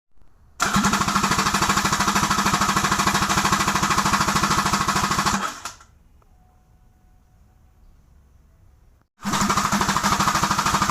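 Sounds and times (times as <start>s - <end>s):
jet ski engine cranking on starter: 0.6s - 1.8s, 9.2s - 10.9s.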